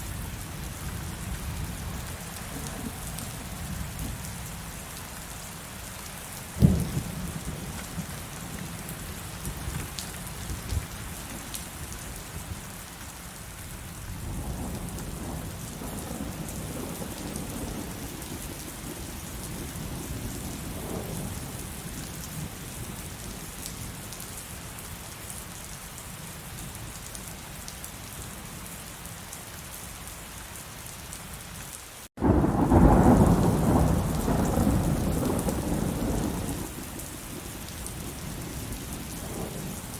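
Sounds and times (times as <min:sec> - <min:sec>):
heavy rain falling: 0:00.0 - 0:39.9
thunder crack: 0:06.6 - 0:07.1, 0:32.2 - 0:36.7
long peal of thunder: 0:06.6 - 0:07.4, 0:32.2 - 0:36.8
rolling thunder rumble: 0:06.6 - 0:10.9, 0:32.2 - 0:39.9.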